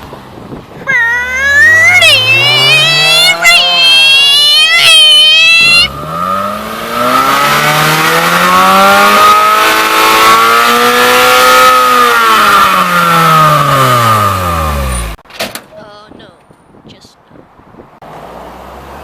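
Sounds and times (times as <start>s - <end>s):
car engine revving high: 0.9s - 15.2s.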